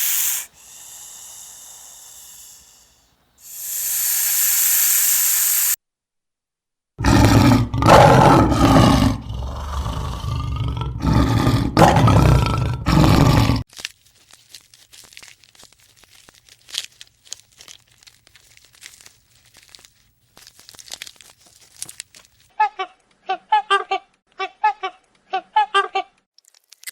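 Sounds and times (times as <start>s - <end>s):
faint crackling and crunching: 13.6s - 23.2s, 26.4s - 26.9s.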